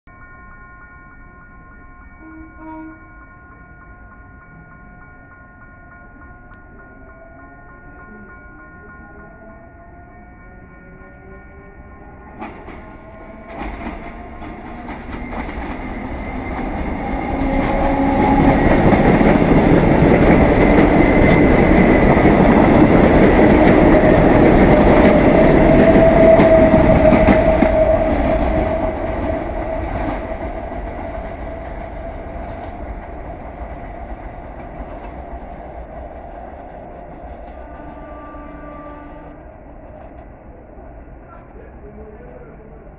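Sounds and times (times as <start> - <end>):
electric train passing: 0.1 - 42.9
wheels clacking over rail joints: 12.4 - 35.4.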